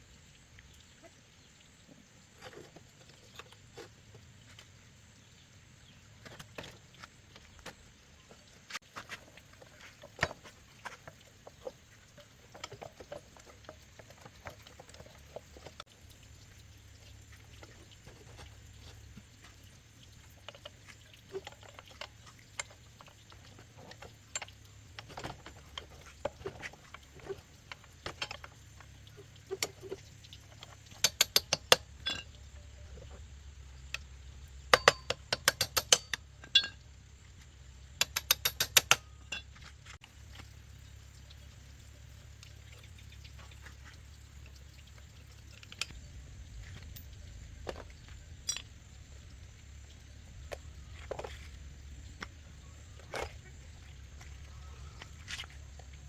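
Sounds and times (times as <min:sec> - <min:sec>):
low steady hum: 0:00.0 - 0:56.0
small clicks and knocks: 0:08.7 - 0:33.3, 0:34.7 - 0:36.8, 0:38.0 - 0:40.6.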